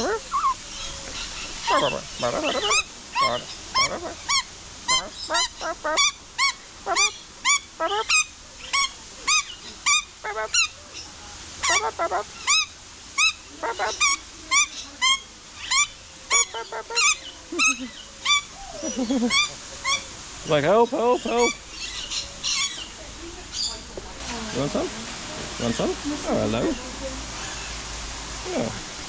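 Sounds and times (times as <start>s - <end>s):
bird honking calls: 1.2s - 10.7s, 11.6s - 18.5s.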